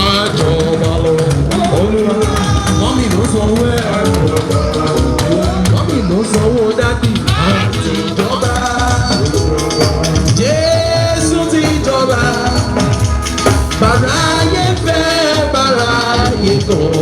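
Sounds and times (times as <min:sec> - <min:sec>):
drums and percussion beat: 0:00.0 - 0:17.0
voices singing: 0:00.0 - 0:17.0.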